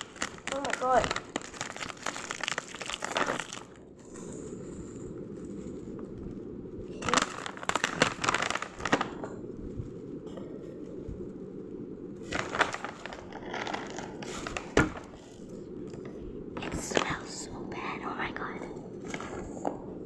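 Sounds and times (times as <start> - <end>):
sharp crack: 0.0 - 3.8
packaging crinkling: 0.0 - 9.9, 12.2 - 17.4, 18.9 - 19.8
steady low hum: 0.0 - 20.0.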